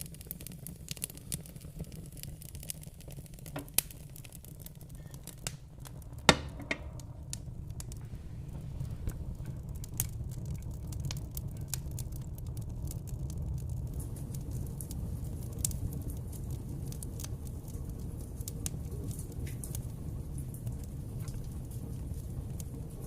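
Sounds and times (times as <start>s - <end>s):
fire crackling and popping: 0.0s - 23.0s
fire low rumble: 0.0s - 23.0s.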